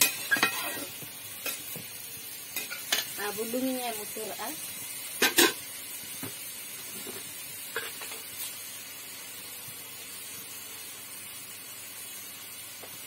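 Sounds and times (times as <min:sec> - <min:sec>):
greens sizzling in pan: 0:00.0 - 0:13.0.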